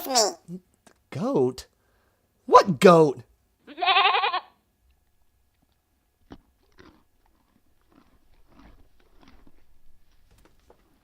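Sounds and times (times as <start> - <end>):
faint crunching and clicking: 4.8 - 11.0.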